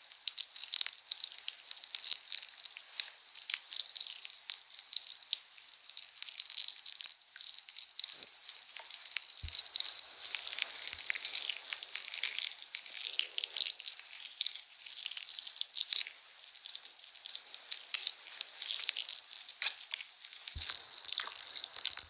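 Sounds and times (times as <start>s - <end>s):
crackling and crinkling: 0.0s - 22.0s.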